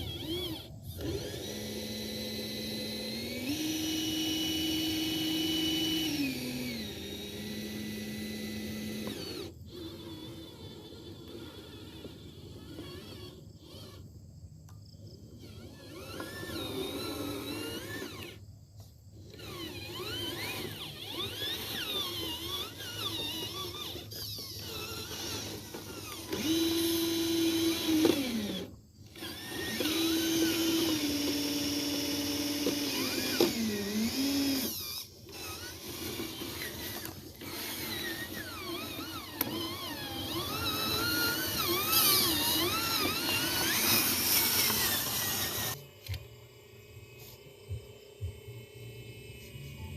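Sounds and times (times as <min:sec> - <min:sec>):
small electric motors whining: 0:00.0 - 0:49.9.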